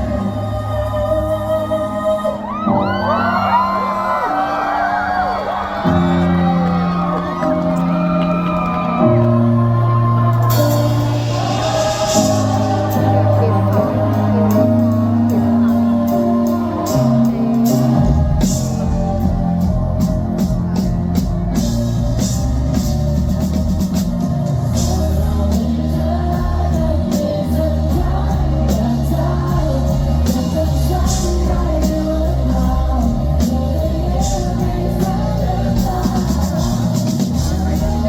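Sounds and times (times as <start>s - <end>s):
bass and guitar: 0.0s - 4.7s, 5.5s - 38.0s
person singing: 0.0s - 38.0s
drum kit: 2.8s - 38.0s.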